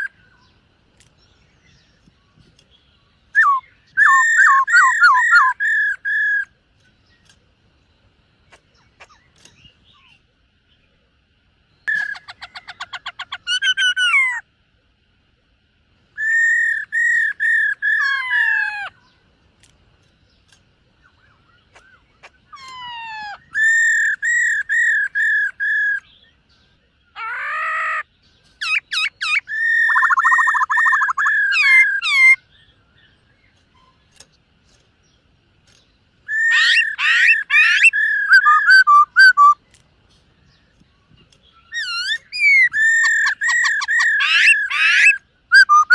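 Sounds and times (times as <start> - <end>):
bird singing whistled phrases: 3.3 - 6.5, 16.2 - 18.9, 27.1 - 32.5, 36.2 - 39.6, 41.5 - 45.9.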